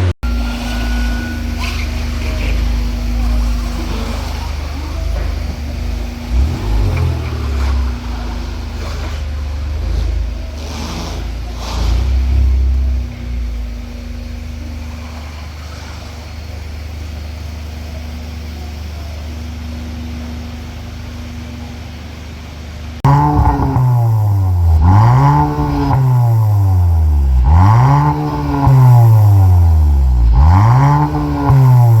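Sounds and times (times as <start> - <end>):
car engine idling and revving: 0.0 - 32.0.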